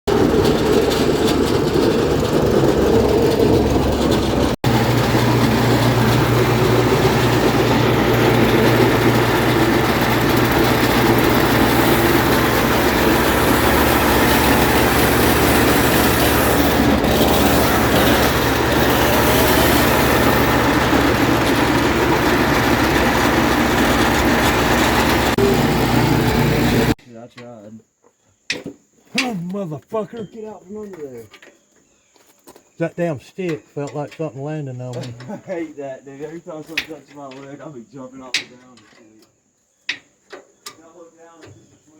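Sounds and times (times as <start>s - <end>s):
wood chipper engine running: 0.1s - 27.0s.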